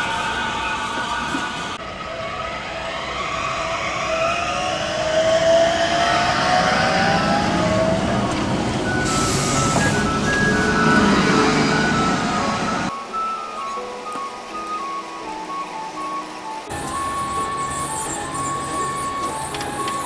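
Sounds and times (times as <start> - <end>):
tram electric drive whine: 0.0 - 20.0.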